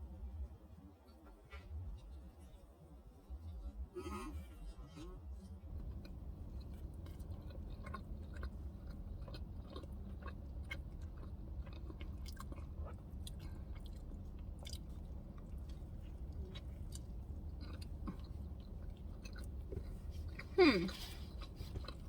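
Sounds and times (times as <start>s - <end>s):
person chewing food: 5.7s - 22.0s.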